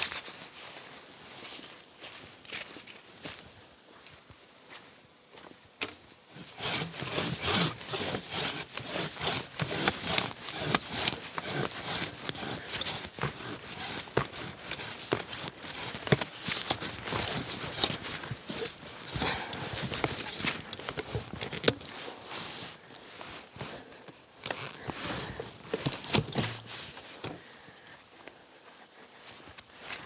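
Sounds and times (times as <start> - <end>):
hand saw cutting branch: 6.4 - 22.3, 24.8 - 27.3.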